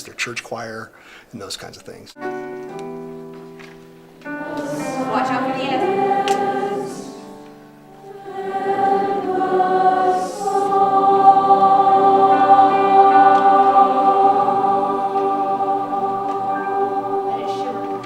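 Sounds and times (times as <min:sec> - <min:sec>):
large choir singing chords: 0:04.2 - 0:18.0.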